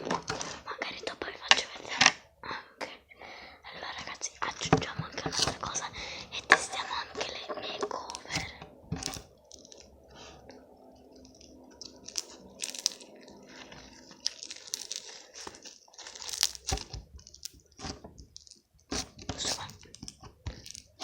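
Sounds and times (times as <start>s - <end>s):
slime popping and crackling: 7.8s - 10.0s, 11.1s - 21.0s.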